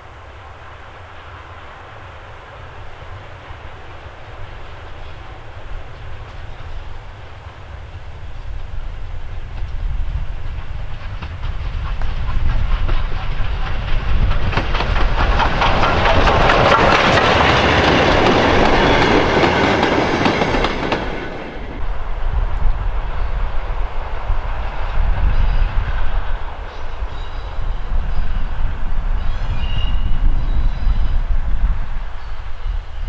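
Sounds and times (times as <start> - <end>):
steam locomotive passing: 0.0 - 33.0
wheels clattering over rail joints: 10.6 - 21.8.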